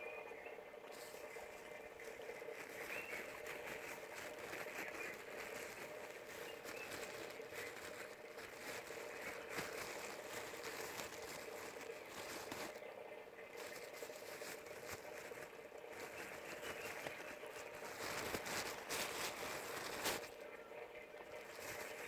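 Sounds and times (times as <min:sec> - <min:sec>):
steady low hum: 0:00.0 - 0:22.0
animal eating with crunching: 0:00.9 - 0:22.0.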